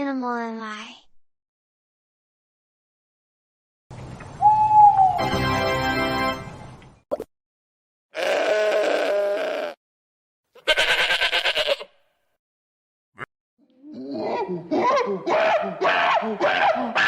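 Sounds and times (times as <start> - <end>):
sheep bleating: 8.2 - 9.8, 10.5 - 12.0.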